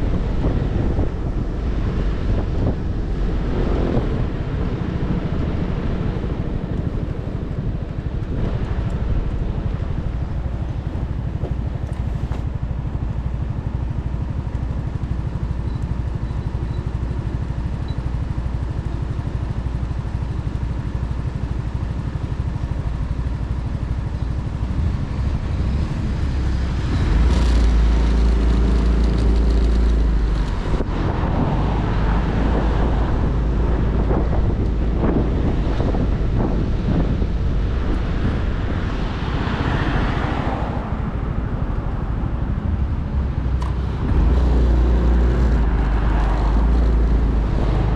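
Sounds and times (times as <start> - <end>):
heavy low rumble: 0.0 - 15.3, 24.5 - 39.5, 40.2 - 47.9
motorcycle engine while riding: 0.0 - 47.9
road noise: 0.0 - 47.9.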